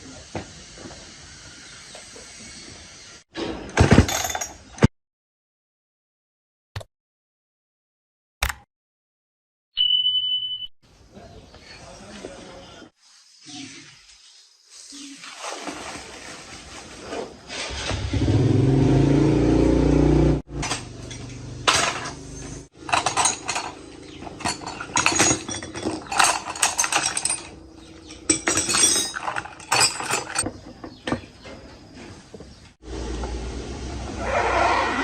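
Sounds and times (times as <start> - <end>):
metal tools clinking: 3.8 - 4.8, 20.6 - 30.4.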